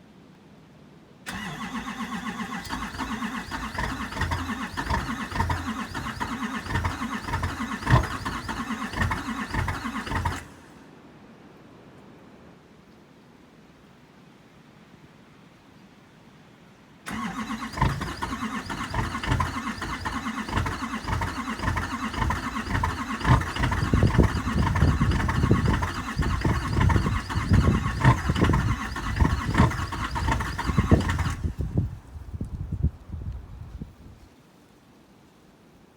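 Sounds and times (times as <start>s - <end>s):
diesel engine starting and clattering: 1.3s - 10.8s, 17.1s - 32.2s.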